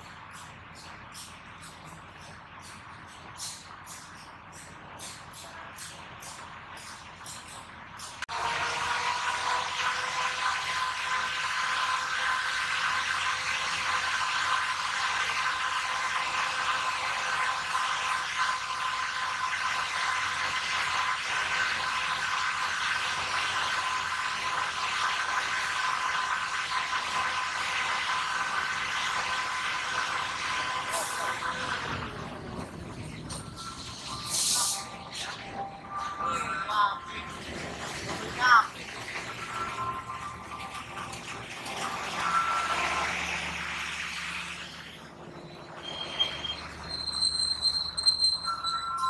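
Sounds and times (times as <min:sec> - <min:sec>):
high-pitched whine: 0:38.8 - 0:49.0.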